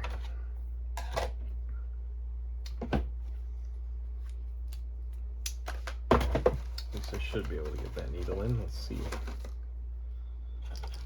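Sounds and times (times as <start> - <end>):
low hum: 7.7 - 11.0.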